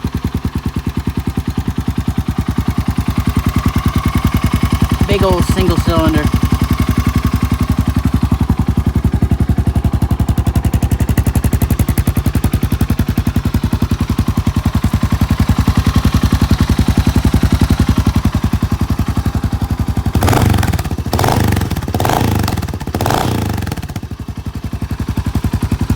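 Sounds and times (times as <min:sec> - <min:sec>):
motorcycle engine idling: 0:00.0 - 0:25.9.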